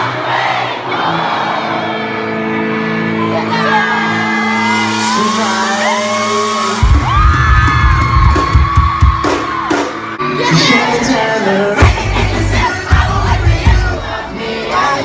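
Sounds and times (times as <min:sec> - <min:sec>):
crowd screaming and singing: 0:00.0 - 0:15.0
live rock band playing: 0:01.3 - 0:15.0
drums and bass: 0:04.4 - 0:15.0.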